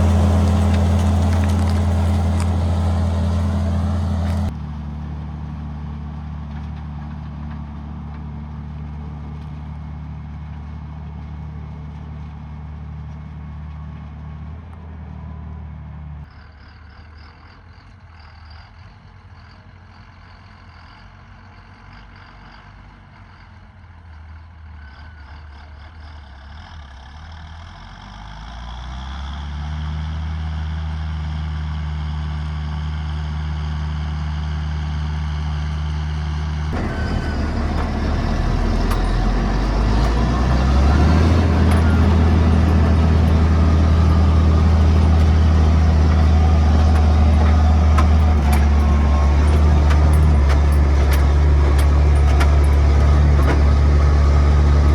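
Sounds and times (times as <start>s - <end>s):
discs rushing through soil: 0.0s - 4.6s, 36.7s - 54.9s
tractor diesel engine under load: 0.0s - 16.2s, 21.8s - 54.9s.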